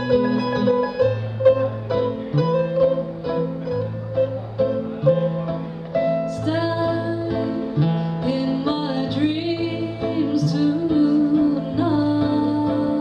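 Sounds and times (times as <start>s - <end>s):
plucked and strummed guitar: 0.0s - 13.0s
person singing: 6.3s - 13.0s.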